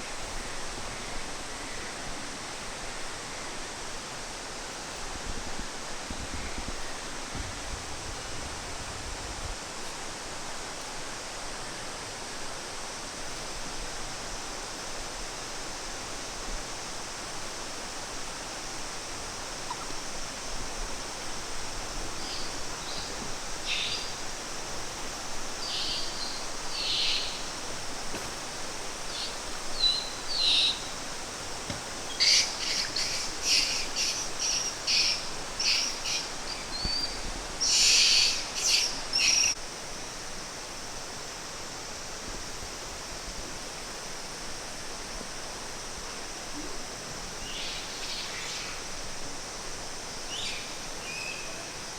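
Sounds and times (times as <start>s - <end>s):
birds chirping: 21.7s - 39.6s.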